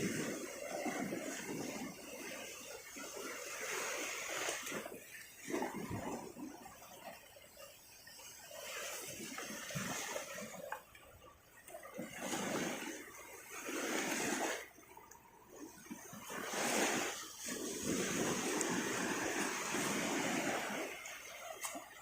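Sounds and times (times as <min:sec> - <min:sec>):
small waves breaking on beach: 0:00.0 - 0:22.0.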